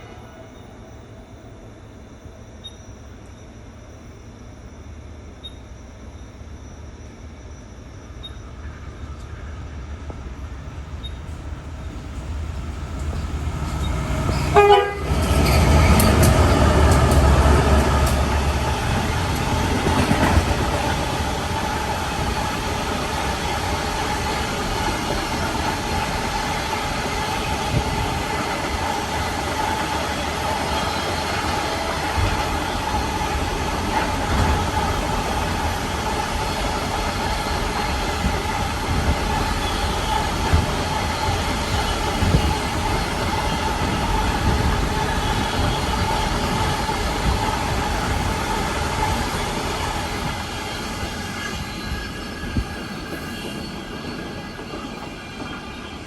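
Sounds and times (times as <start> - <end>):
train passing: 6.6 - 56.0
train horn blast: 13.9 - 16.2.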